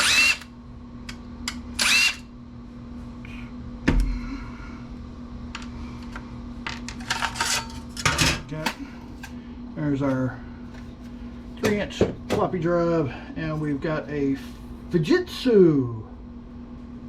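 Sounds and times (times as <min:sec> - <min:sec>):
power screwdriver whirring: 0:00.0 - 0:00.5, 0:01.8 - 0:02.2.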